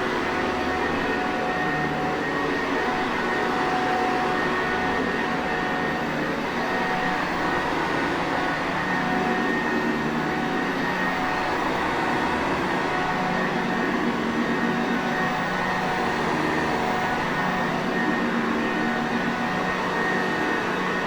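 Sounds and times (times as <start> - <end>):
vacuum cleaner running: 13.2 - 21.0.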